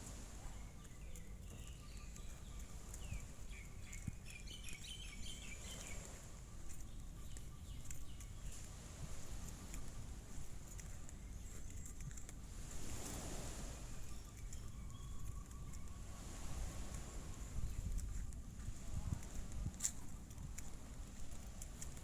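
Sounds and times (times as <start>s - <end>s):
small birds chirping: 0.4s - 12.4s, 14.0s - 16.4s.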